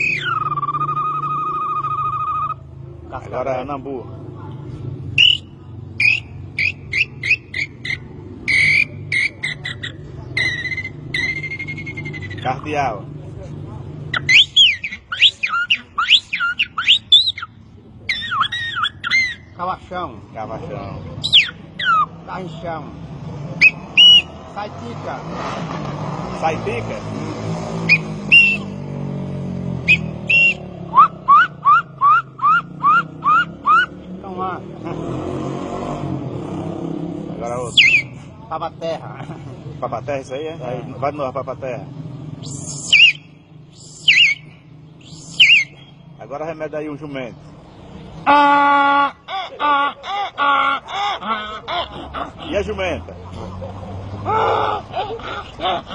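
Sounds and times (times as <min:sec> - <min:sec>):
man whistling bird call: 0:00.0 - 0:02.6, 0:05.2 - 0:12.5, 0:14.1 - 0:19.5, 0:21.2 - 0:22.1, 0:23.6 - 0:24.4, 0:27.9 - 0:28.8, 0:29.8 - 0:34.0, 0:37.7 - 0:38.2, 0:42.4 - 0:46.1.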